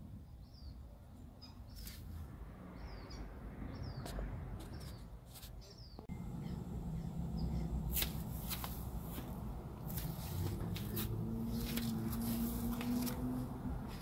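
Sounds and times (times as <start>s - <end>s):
small birds chirping: 0.0s - 14.0s
low background rumble: 6.0s - 14.0s.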